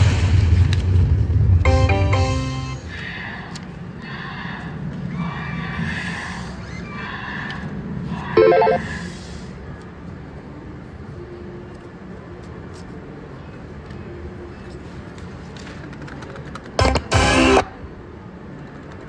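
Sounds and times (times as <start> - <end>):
slot machine horse whinny effect: 8.4 - 8.8, 16.8 - 17.7
loud electronic tone: 16.8 - 17.7.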